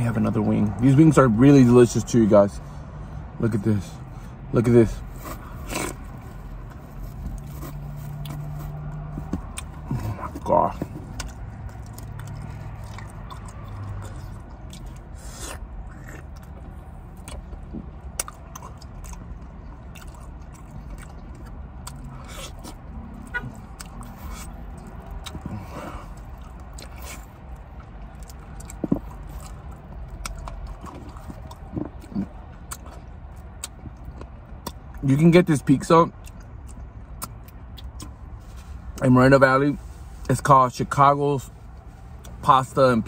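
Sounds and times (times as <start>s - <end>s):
person chewing food: 5.1s - 35.0s, 36.2s - 38.1s.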